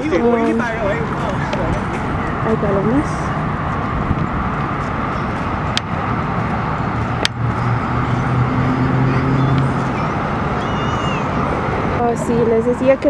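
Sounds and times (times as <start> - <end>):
traffic rushing: 0.0 - 13.0
vehicle engine humming: 0.0 - 13.0.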